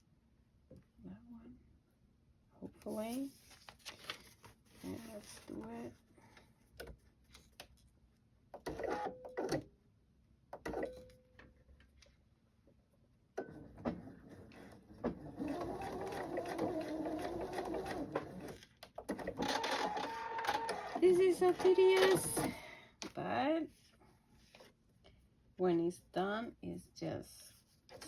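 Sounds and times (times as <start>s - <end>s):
sewing machine stitching: 13.6s - 22.6s.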